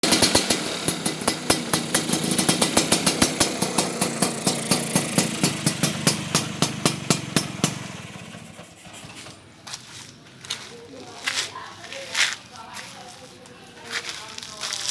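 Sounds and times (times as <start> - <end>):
exhaust popping: 0.0 - 9.8
scooter engine idling: 0.0 - 11.2.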